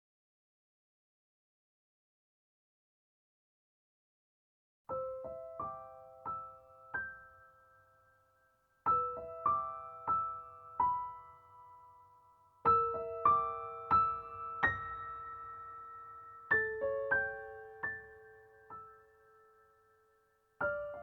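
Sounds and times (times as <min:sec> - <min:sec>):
slow solo piano melody: 0:04.9 - 0:21.0.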